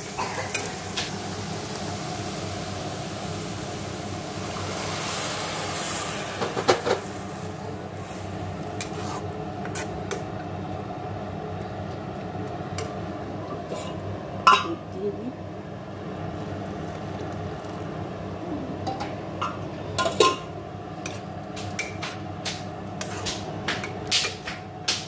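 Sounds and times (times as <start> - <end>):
carrots sizzling in a pan: 0.0 - 9.3.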